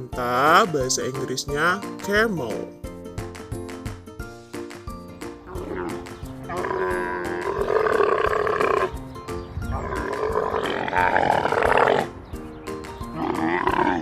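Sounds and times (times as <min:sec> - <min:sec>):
light background music: 0:00.0 - 0:14.0
camel calling: 0:05.2 - 0:12.2, 0:13.0 - 0:14.0.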